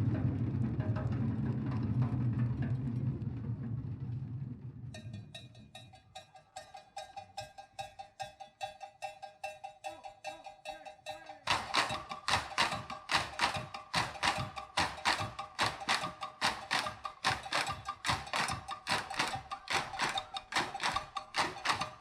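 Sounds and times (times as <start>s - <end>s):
stick tapping bell-like rhythm: 5.0s - 22.0s.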